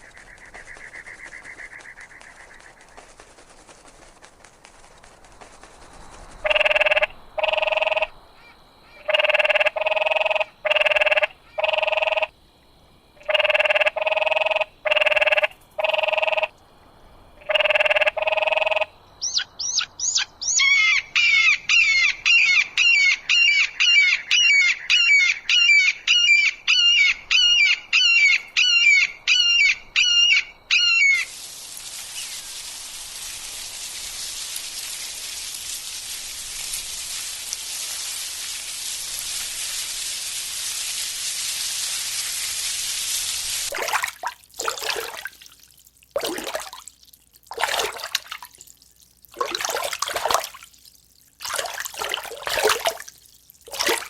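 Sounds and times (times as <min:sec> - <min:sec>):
rapid bird chirping: 0:00.0 - 0:07.0, 0:19.2 - 0:31.3
steady hiss: 0:31.2 - 0:43.7.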